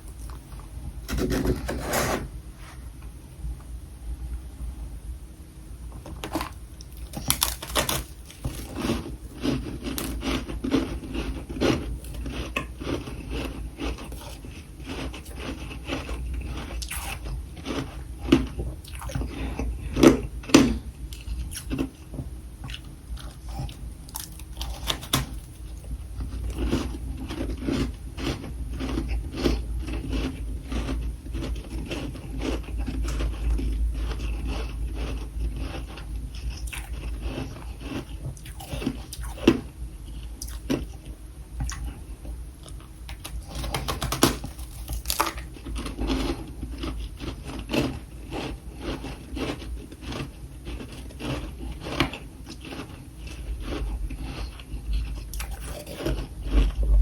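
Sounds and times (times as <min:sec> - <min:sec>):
low steady hum: 0:00.0 - 0:57.0
irregular crunching and clicking: 0:05.9 - 0:57.0.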